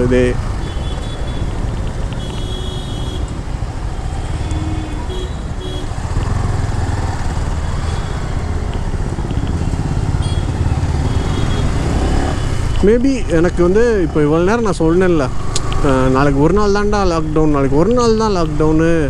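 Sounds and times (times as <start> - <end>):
traffic rumble: 0.0 - 19.0
motorcycle engine running: 5.8 - 12.4.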